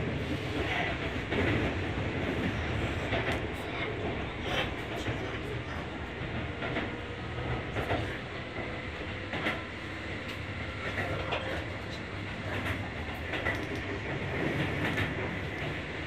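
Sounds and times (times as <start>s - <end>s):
train carriage rumble: 0.0s - 16.0s
wheels clicking over rail joints: 6.3s - 15.8s.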